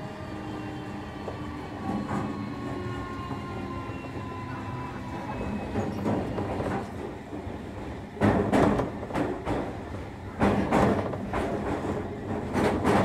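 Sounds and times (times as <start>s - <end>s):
train running rumble: 0.0s - 13.0s
train wheels clattering: 5.3s - 13.0s.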